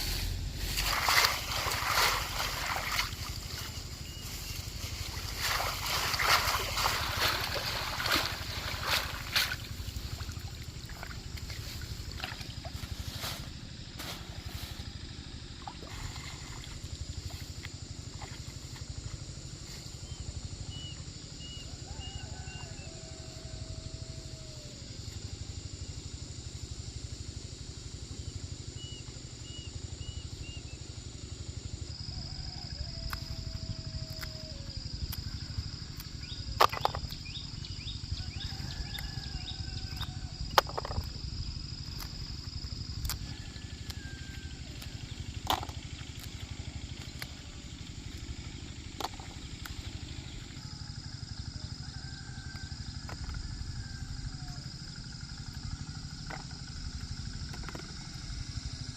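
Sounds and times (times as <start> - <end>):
steady low rumble: 0.0 - 21.8
high-pitched insect drone: 0.0 - 58.9.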